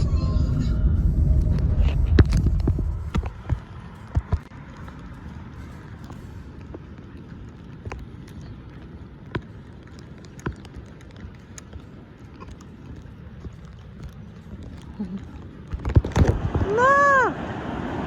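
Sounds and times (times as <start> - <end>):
low rumble: 0.0 - 9.8
footsteps walking: 1.4 - 16.6.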